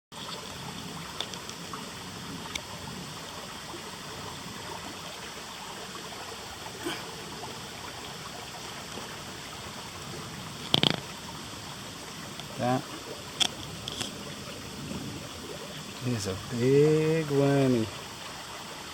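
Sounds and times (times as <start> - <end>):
stream rushing: 0.1 - 18.9.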